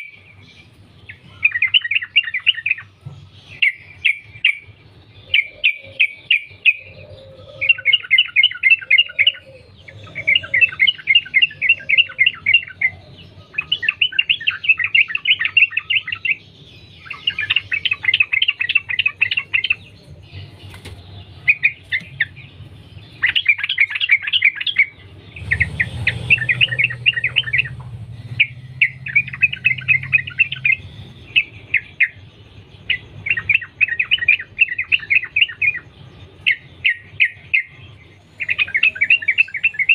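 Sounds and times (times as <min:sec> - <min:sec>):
bird singing rapid chirps: 0:00.0 - 0:39.9
low hum: 0:24.9 - 0:33.2.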